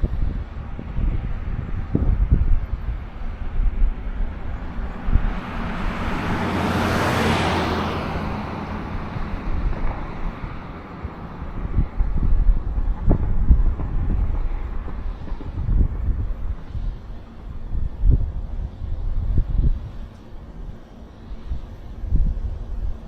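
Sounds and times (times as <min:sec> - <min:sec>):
wind buffeting microphone: 0:00.0 - 0:23.0
vehicle driving past: 0:03.2 - 0:13.1.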